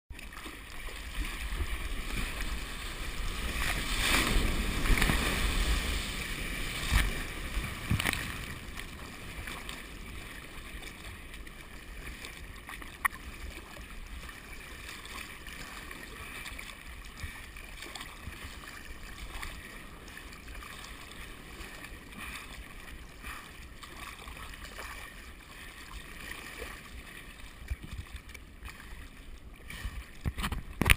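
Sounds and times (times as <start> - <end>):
wind rumbling on microphone: 0.8 - 12.6
ocean surf breaking: 0.9 - 11.4.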